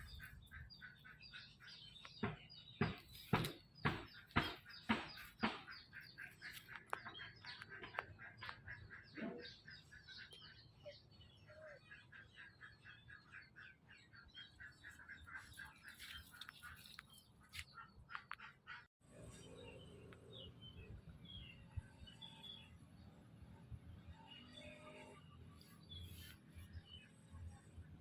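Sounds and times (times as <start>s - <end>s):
sharp knocks: 2.2s - 6.0s.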